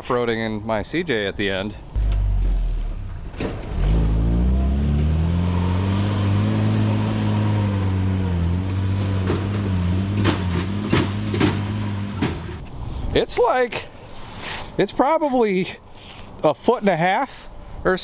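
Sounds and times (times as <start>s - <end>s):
vehicle engine idling: 2.0s - 4.6s
sharp knocks: 9.0s - 12.6s.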